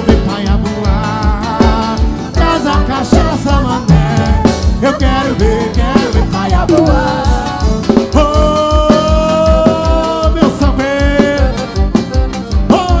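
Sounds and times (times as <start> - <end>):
quick low drum beat: 0.0 - 11.6
live band music: 0.0 - 13.0
held melody notes: 6.6 - 8.0.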